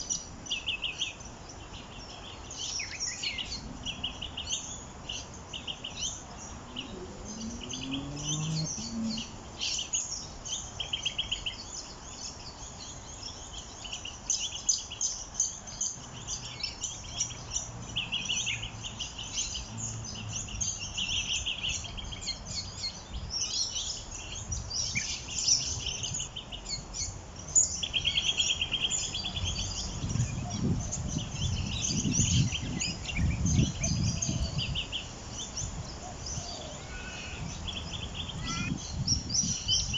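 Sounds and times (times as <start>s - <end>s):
small birds chirping: 0.0s - 39.9s
buzzy bird trills: 36.4s - 39.7s.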